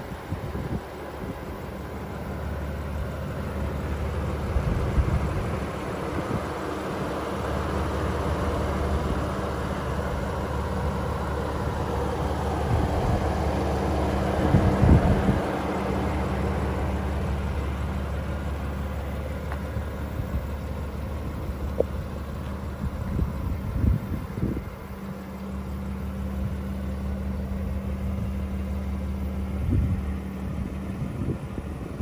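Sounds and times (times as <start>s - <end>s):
low rumble: 0.0s - 25.0s
car engine idling: 0.0s - 32.0s.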